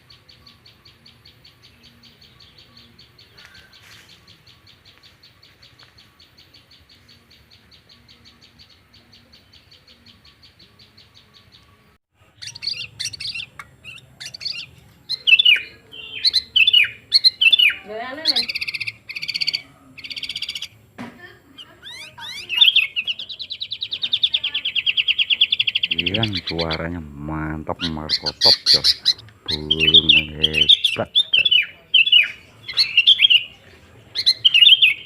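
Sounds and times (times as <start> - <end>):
bird high trill: 12.3 - 20.8, 21.5 - 26.8, 27.7 - 33.5.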